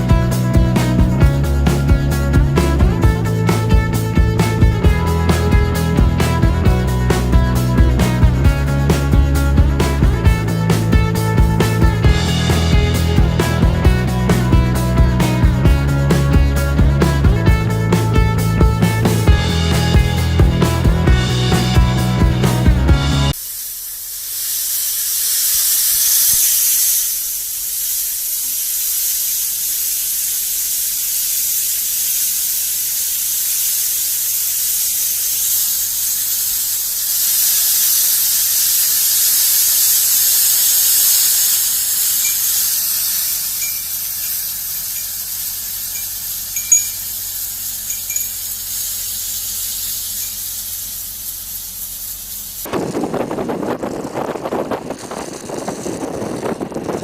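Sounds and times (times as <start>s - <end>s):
loud high-pitched hiss: 0.0s - 53.8s
short high squeaks: 41.2s - 51.7s.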